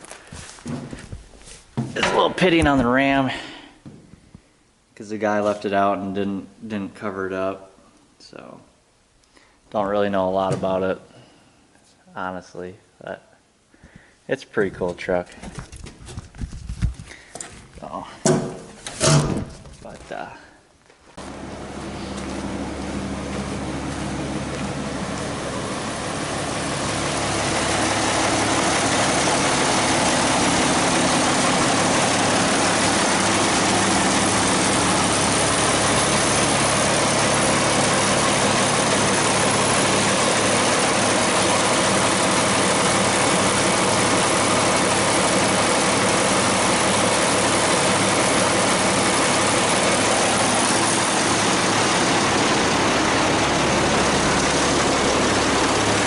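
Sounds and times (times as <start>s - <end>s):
vehicle engine idling: 21.2s - 56.0s.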